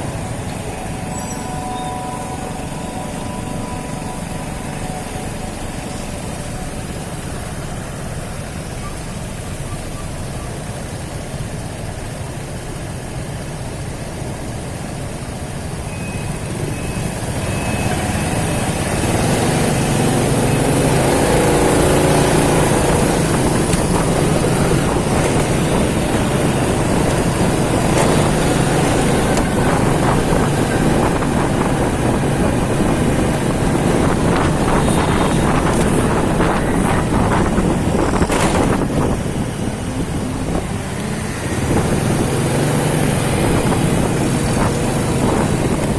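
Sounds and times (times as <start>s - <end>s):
motorcycle engine running: 0.0s - 45.9s
road noise: 0.0s - 45.9s
wind noise: 16.4s - 45.9s.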